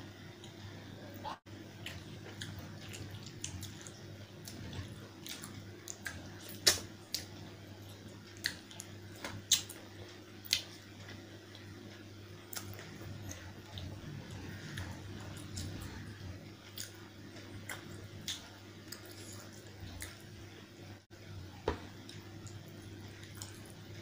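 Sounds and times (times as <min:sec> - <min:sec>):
wet chewing and squishing: 0:01.8 - 0:09.8, 0:12.5 - 0:20.3.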